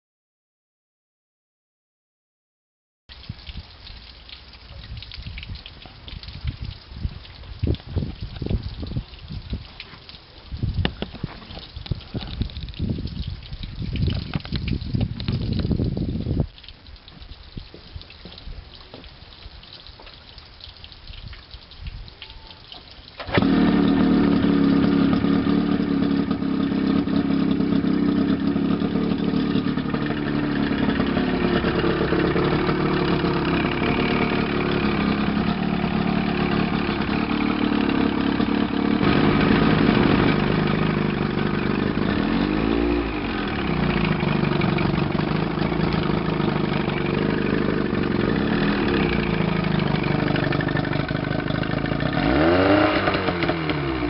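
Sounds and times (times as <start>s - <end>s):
outboard engine running: 23.2s - 54.0s.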